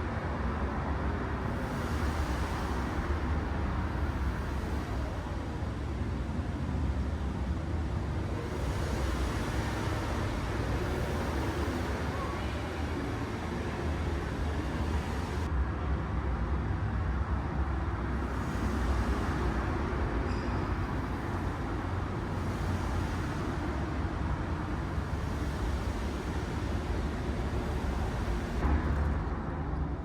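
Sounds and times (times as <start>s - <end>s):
noisy hiss: 0.0s - 30.0s.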